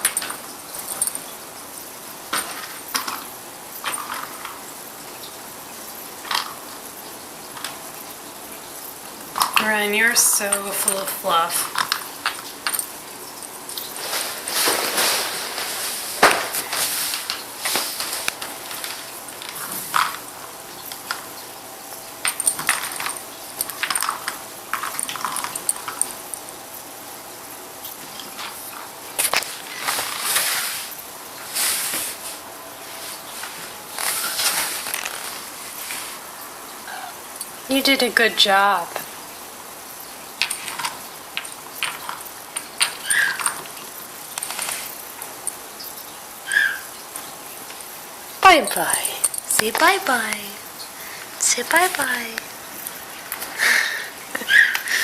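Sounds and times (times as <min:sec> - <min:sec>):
pet's short high calls: 0:46.5 - 0:46.9.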